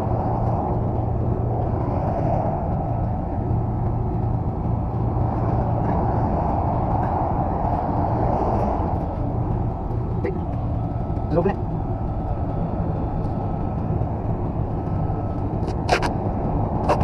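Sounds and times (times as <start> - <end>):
engine idling: 0.0 - 8.2
constant low hum: 0.0 - 17.0.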